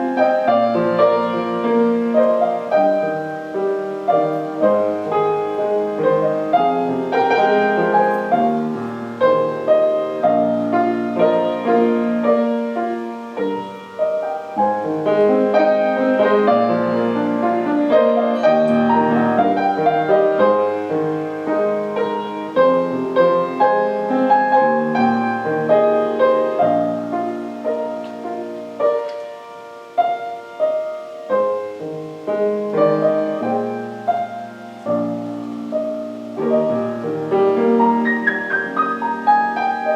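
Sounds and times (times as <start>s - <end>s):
solo piano playing slow chords: 0.0s - 39.9s.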